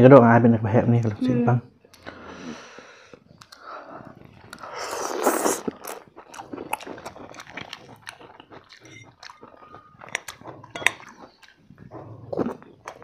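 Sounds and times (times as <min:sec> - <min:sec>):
crunches and wet clicks: 0:03.0 - 0:04.8
chewing and biting fried chicken: 0:03.0 - 0:13.0.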